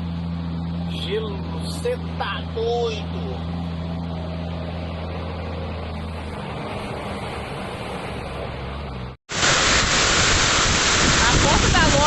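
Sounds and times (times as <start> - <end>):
vehicle engine hum: 0.0 - 9.2
hail and heavy rain: 9.3 - 12.0.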